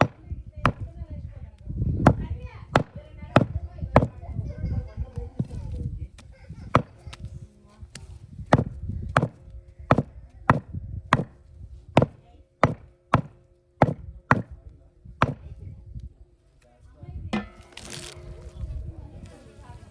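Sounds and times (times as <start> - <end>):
cleaver chopping meat and bone: 0.0 - 1.0, 2.0 - 4.2, 6.7 - 7.2, 8.5 - 11.4, 12.0 - 14.6, 15.2 - 15.5.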